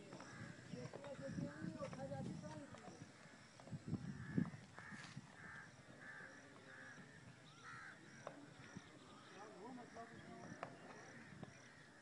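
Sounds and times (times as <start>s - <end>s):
bird calling: 0.0s - 12.0s.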